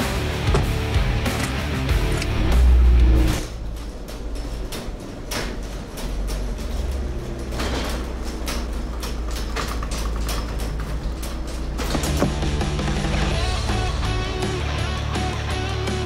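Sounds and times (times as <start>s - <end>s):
clicks and knocks: 3.5s - 12.6s.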